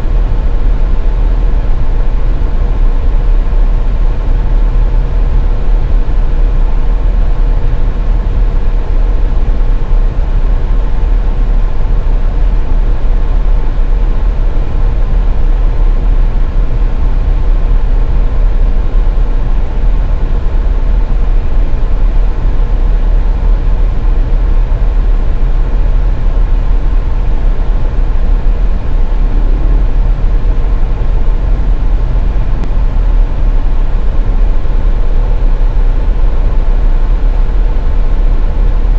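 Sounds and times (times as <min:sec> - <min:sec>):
car road and engine rumble: 0:00.0 - 0:38.9
faint steady hum: 0:00.0 - 0:38.9.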